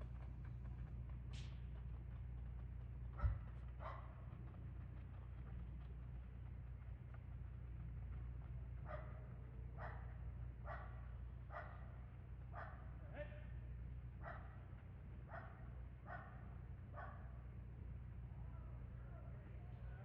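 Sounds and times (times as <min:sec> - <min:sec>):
low hum: 0:00.0 - 0:20.0
dog barking: 0:03.2 - 0:04.2, 0:08.8 - 0:13.0, 0:14.2 - 0:17.4.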